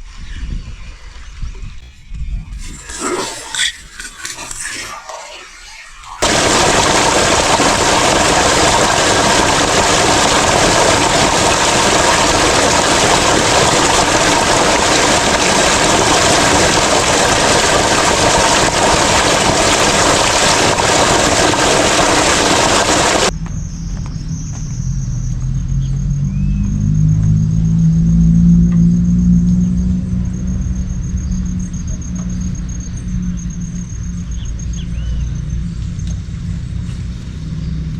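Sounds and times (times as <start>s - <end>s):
creek water rushing: 2.6s - 23.3s.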